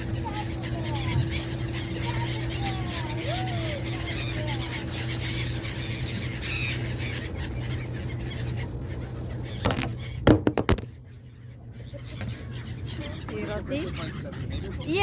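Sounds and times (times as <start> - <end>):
seagulls squawking: 0.0 - 15.0
loud sharp knocks: 9.6 - 10.9.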